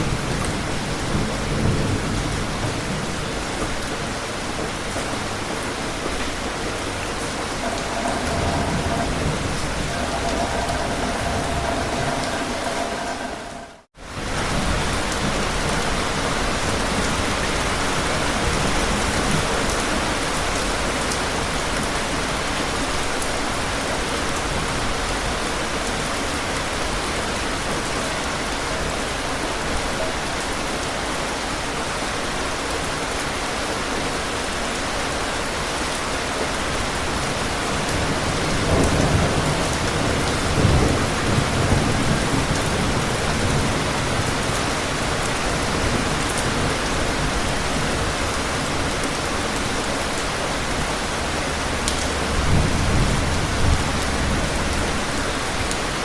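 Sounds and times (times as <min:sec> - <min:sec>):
thunder rumbling: 0:00.0 - 0:16.2, 0:50.6 - 0:56.0
steady rain falling: 0:00.0 - 0:56.0.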